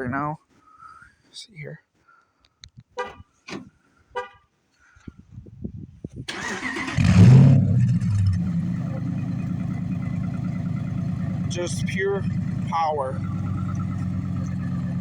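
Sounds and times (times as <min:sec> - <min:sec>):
car engine starting and idling: 0:06.3 - 0:15.0.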